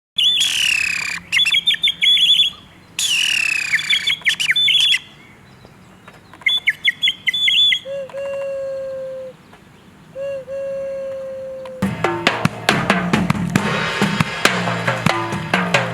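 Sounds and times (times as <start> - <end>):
bird-like squealing calls: 0.2 - 5.4, 6.3 - 11.9.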